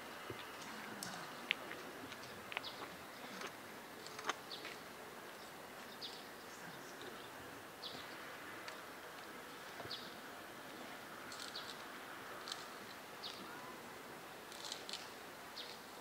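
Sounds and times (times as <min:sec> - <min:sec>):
small birds chirping: 0:00.4 - 0:08.4, 0:09.6 - 0:10.2, 0:11.3 - 0:13.8, 0:14.5 - 0:16.0.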